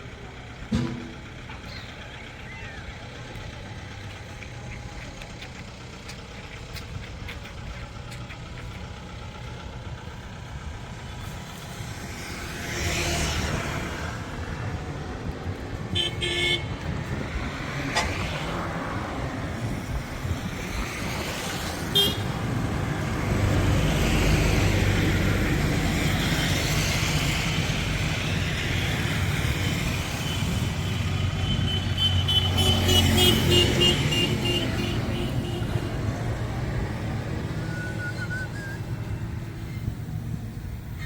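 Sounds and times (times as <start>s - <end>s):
tractor engine running: 0.0s - 41.0s.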